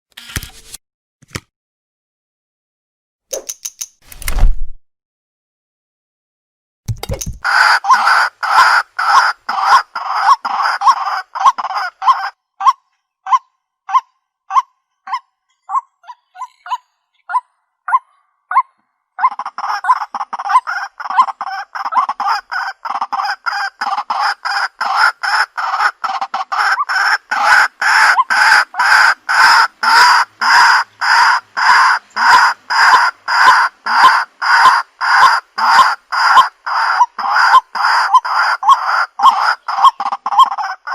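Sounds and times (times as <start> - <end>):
waterhen calling: 7.4 - 16.8, 19.2 - 40.9.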